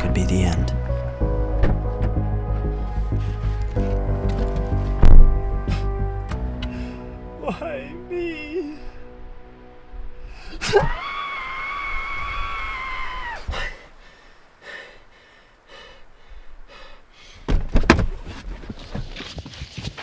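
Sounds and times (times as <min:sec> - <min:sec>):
heavy thunks: 0:00.0 - 0:07.2, 0:09.2 - 0:11.1, 0:17.2 - 0:19.3
high-pitched wail: 0:10.7 - 0:13.5.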